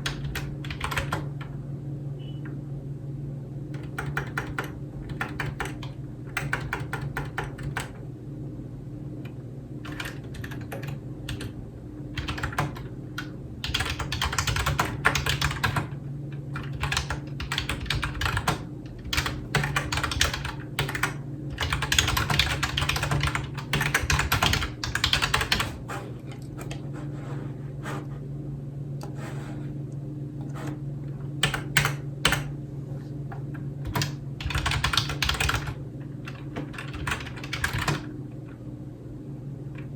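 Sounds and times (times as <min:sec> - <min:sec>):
typing on computer keyboard: 0:00.0 - 0:01.3, 0:03.7 - 0:08.0, 0:09.8 - 0:11.6, 0:12.2 - 0:25.8, 0:31.4 - 0:32.5, 0:33.8 - 0:38.1
steady low hum: 0:00.0 - 0:39.9.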